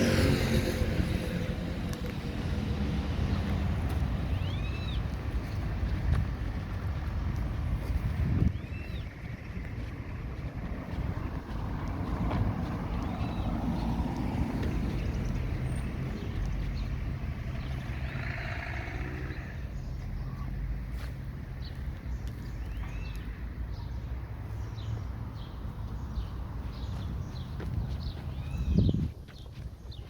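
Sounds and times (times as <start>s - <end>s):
vehicles driving past: 0.0s - 30.0s.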